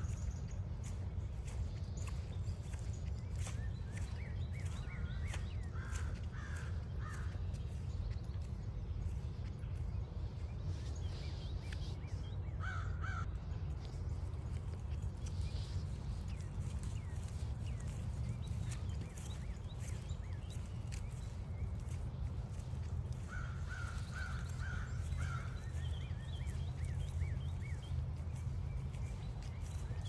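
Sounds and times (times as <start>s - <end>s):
footstep clicks on trail: 0.0s - 30.0s
small birds chirping: 0.0s - 30.0s
steady low rumble: 0.0s - 30.0s
crow cawing: 5.7s - 7.3s, 12.6s - 13.2s, 23.3s - 25.6s.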